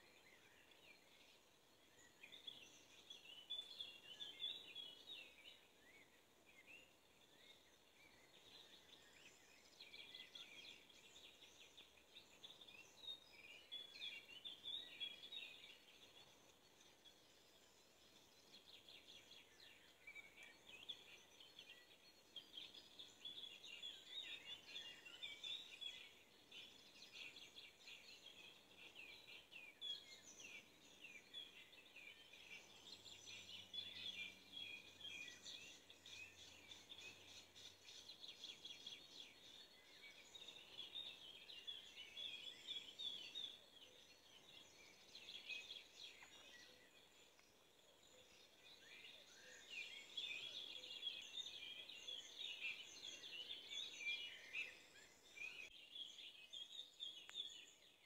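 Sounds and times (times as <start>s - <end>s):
faint birds chirping: 0.0s - 58.0s.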